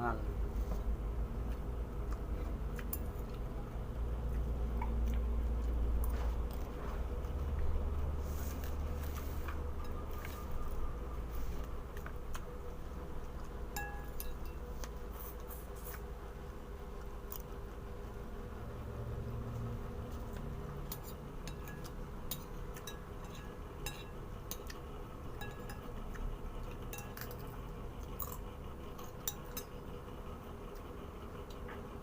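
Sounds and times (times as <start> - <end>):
low background hum: 0.0 - 32.0
utensils clinking on dishes: 20.9 - 24.8, 25.4 - 25.9, 26.9 - 27.5.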